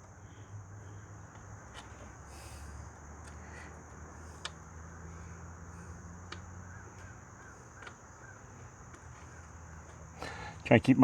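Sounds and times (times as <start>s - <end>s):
high insect drone: 0.0s - 11.0s
bird calling: 5.8s - 10.6s.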